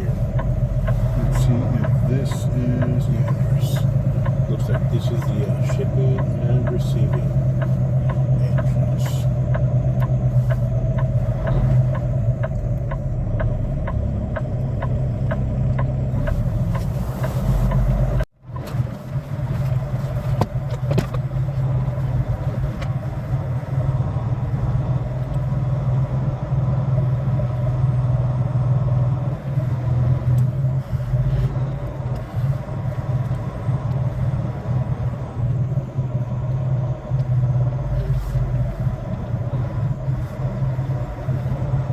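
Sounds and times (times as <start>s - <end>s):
light regular ticking: 0.0s - 18.7s
diesel engine humming: 0.0s - 41.9s.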